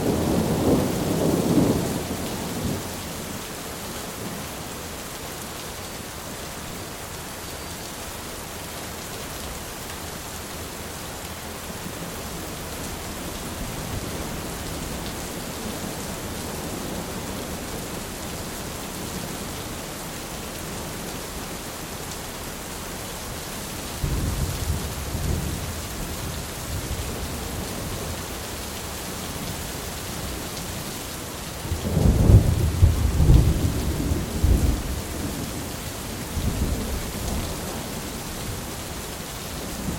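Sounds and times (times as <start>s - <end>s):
heavy rain: 0.0s - 39.9s
rolling thunder: 31.7s - 35.7s.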